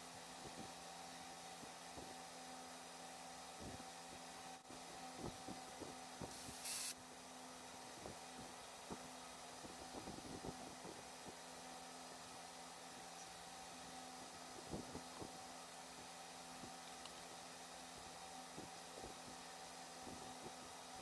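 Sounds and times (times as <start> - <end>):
steady low hum: 0.0 - 21.0
short burst of hiss: 6.3 - 7.0.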